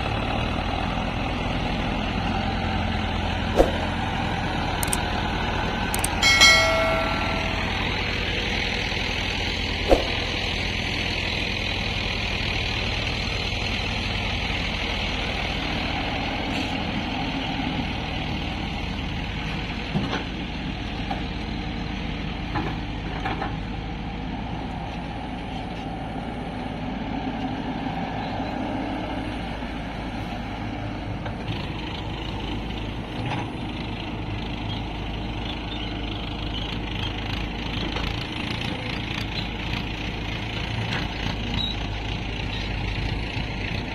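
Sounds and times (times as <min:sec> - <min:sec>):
diesel engines running: 0:00.0 - 0:43.9
sharp knocks: 0:09.9 - 0:10.3.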